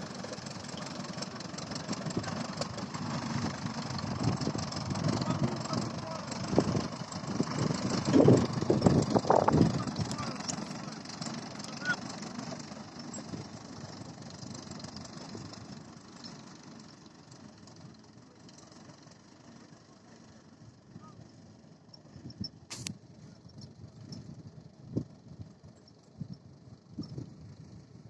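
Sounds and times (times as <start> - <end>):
tractor engine running: 0.0 - 28.0
sharp click: 22.7 - 23.0.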